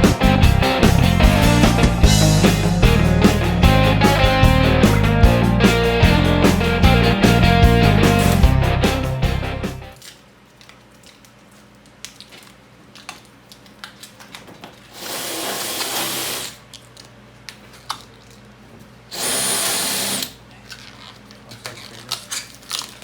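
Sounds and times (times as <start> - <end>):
small power tool whining: 19.1 - 20.4.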